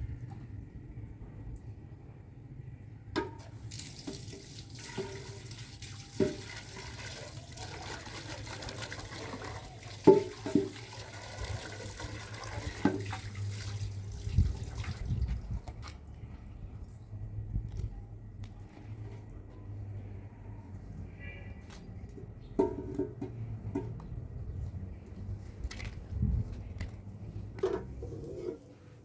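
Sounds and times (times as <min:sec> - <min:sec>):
water running and splashing: 0:03.6 - 0:15.2.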